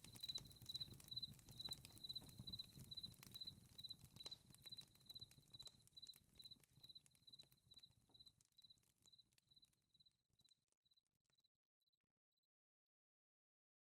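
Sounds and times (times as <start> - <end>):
fire crackling: 0.0 - 9.6
cricket chirping: 0.2 - 5.3.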